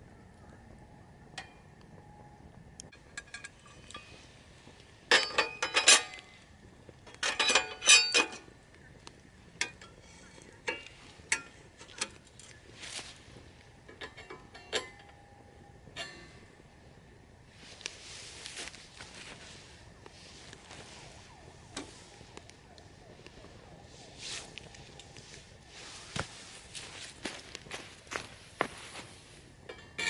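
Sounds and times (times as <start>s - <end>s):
metal cookware clinking: 5.1s - 6.3s, 7.1s - 8.5s, 9.6s - 12.6s, 13.8s - 15.3s, 29.7s - 30.0s.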